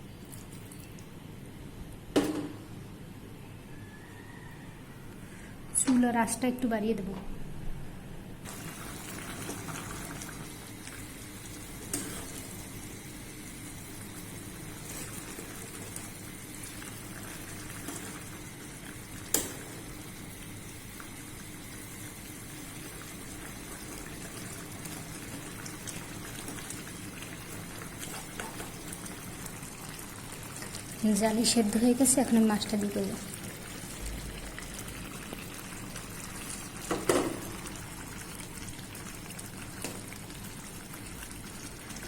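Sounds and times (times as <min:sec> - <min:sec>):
pot boiling and bubbling: 0:08.4 - 0:42.0.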